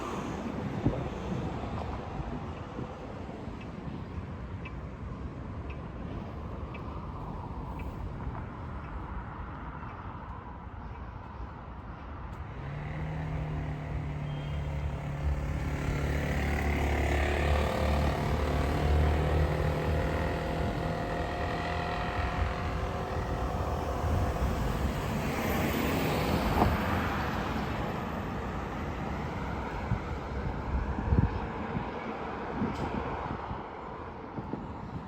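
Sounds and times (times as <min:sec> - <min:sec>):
passing traffic: 0:00.0 - 0:35.0
heavy vehicle engine running: 0:12.8 - 0:27.8.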